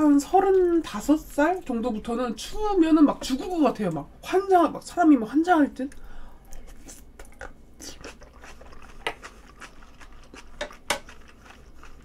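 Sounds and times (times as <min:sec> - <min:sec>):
person chewing food: 0:06.0 - 0:12.0.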